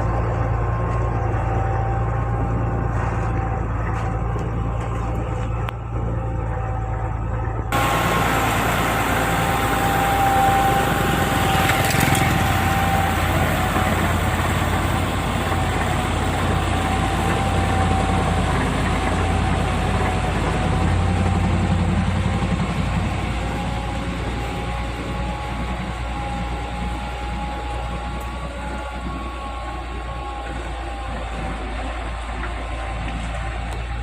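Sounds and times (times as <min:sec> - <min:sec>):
tractor engine running: 0:00.0 - 0:34.0
rushing noise: 0:07.7 - 0:20.4.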